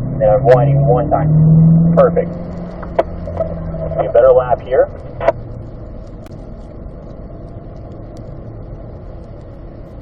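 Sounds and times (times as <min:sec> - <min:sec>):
car engine running: 0:00.0 - 0:10.0
road noise: 0:00.0 - 0:10.0.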